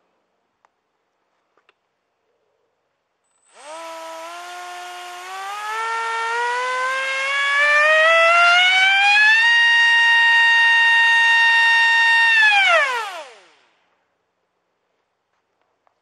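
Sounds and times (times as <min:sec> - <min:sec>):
electric motor whine: 0:03.4 - 0:13.8.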